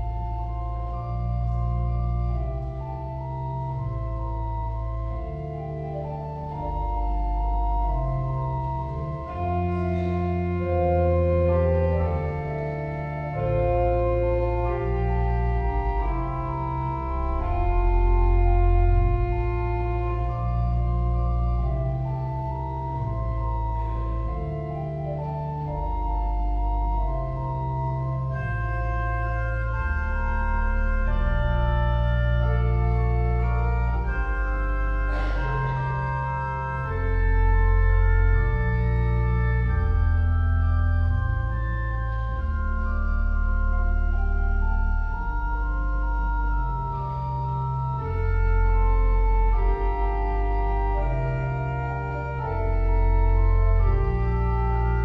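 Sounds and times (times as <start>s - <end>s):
church organ chords: 0.0s - 55.0s
person coughing: 35.1s - 35.9s.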